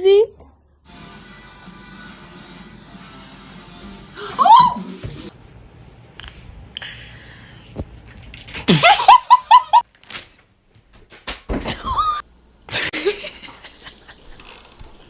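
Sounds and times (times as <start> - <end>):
person laughing: 4.2 - 5.0, 8.7 - 9.8, 11.8 - 14.6
short pitched cry: 4.2 - 5.0.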